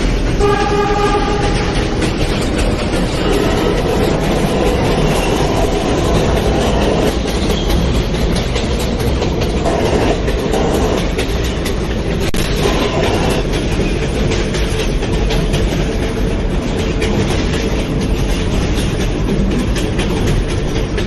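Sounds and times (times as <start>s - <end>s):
subway train wheels rumbling: 0.0s - 21.0s.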